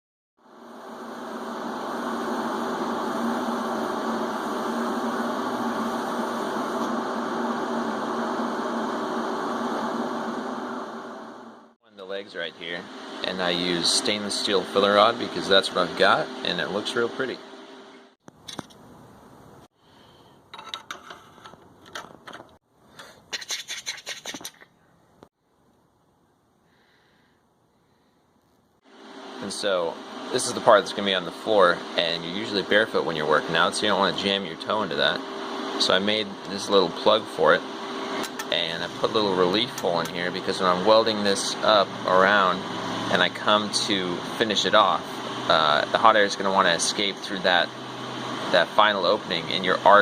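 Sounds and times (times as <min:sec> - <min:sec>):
welding arc hissing and humming: 0:00.5 - 0:11.6, 0:29.0 - 0:50.0.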